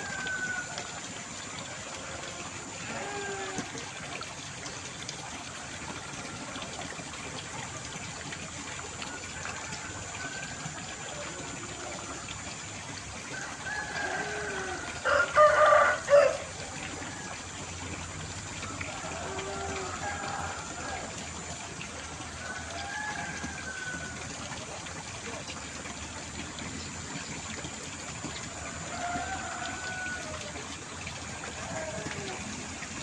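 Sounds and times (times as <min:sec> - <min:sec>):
rooster crowing: 0:00.0 - 0:00.9, 0:13.3 - 0:16.5, 0:19.0 - 0:21.1, 0:22.4 - 0:24.2, 0:28.8 - 0:30.6
water rushing: 0:00.0 - 0:33.0.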